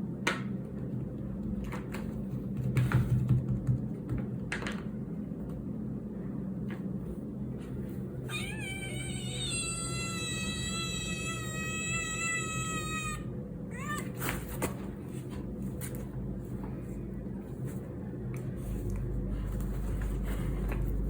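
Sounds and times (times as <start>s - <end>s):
steady low hum: 0.0s - 21.0s
cat yowling: 8.2s - 14.5s.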